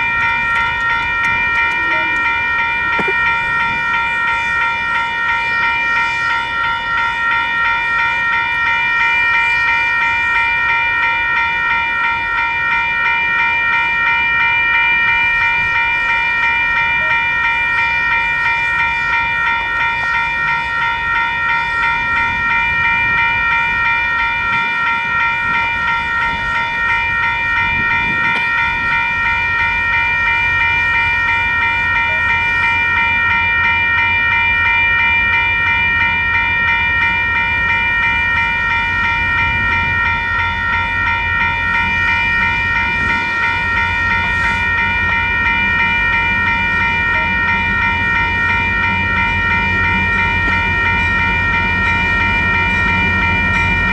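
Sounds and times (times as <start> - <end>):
freight train cars rumbling: 0.0 - 53.9
railroad crossing bells ringing: 0.0 - 53.9.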